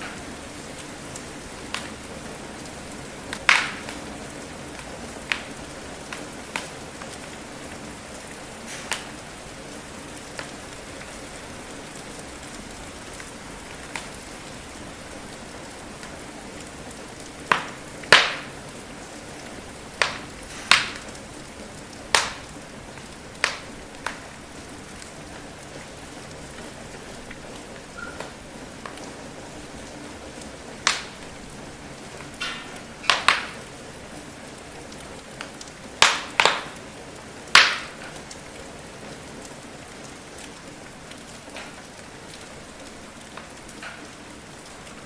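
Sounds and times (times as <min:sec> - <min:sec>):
steady rain hiss: 0:00.0 - 0:45.0
wood fire crackling: 0:00.0 - 0:45.0.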